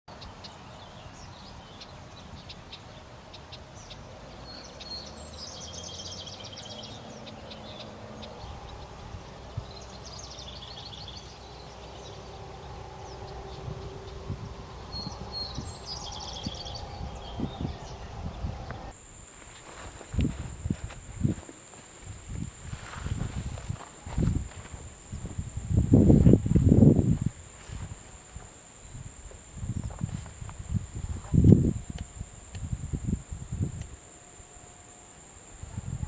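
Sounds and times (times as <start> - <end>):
faint bird chirps: 0.1 - 18.9
songbird singing with trill: 0.1 - 19.0
steady low rumble: 8.2 - 19.0.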